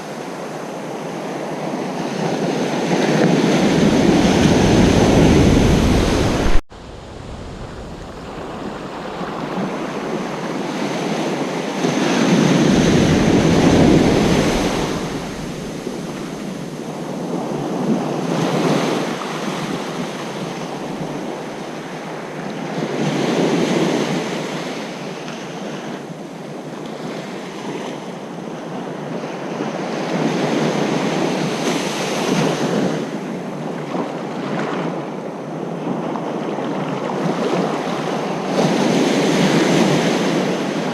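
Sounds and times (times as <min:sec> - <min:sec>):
ocean surf breaking: 0:01.0 - 0:22.3.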